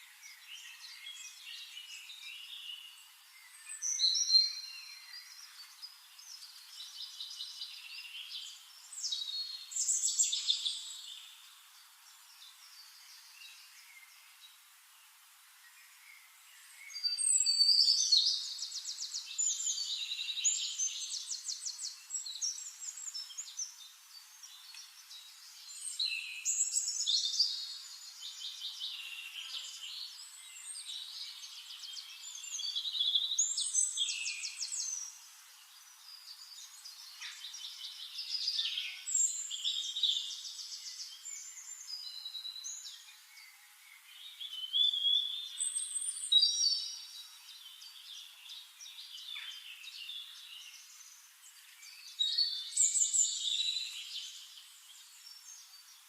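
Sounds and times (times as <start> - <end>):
songbird trills and whistles: 0.0 - 11.4, 15.8 - 35.3, 35.9 - 56.0.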